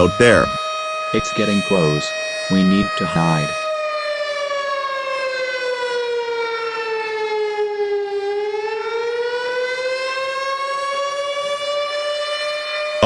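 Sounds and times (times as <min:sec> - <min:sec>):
tornado siren wailing: 0:00.0 - 0:13.0.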